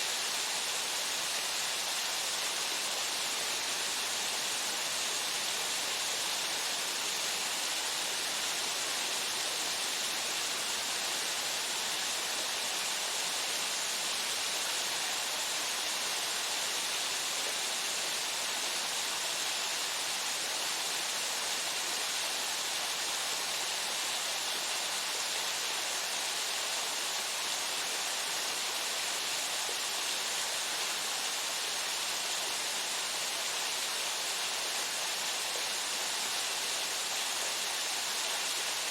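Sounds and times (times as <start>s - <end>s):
waterfall pouring into pool: 0.0s - 38.9s.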